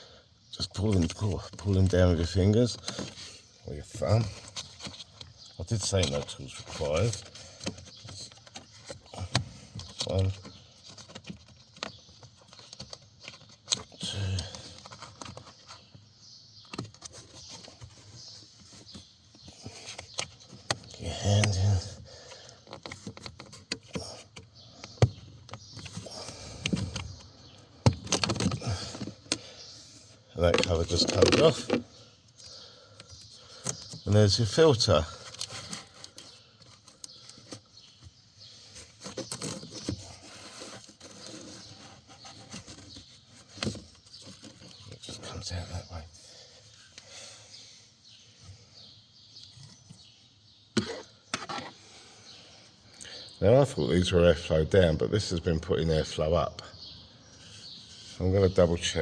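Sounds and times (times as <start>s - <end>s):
plastic clips rubbing and clicking: 30.4s - 31.8s
filter handling: 30.4s - 31.9s.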